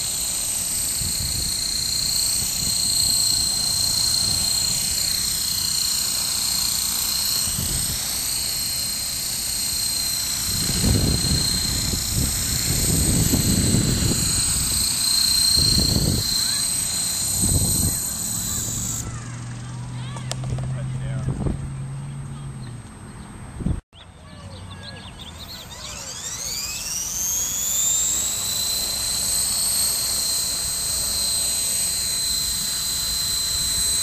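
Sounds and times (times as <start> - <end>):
rc helicopter high-pitched whine: 0.0 - 22.6, 24.0 - 34.0.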